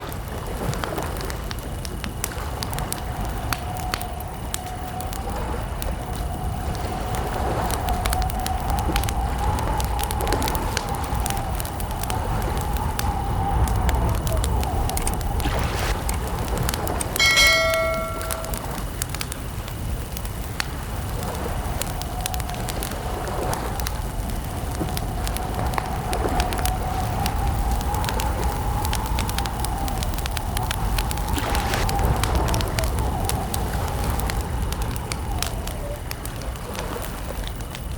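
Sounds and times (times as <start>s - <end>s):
campfire crackling and popping: 0.0s - 37.9s
faint steady tone: 17.2s - 19.1s.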